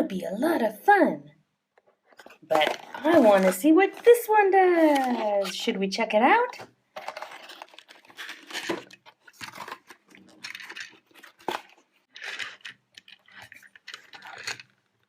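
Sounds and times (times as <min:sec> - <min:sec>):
packaging crinkling and tearing: 0:02.2 - 0:05.7, 0:06.9 - 0:15.0.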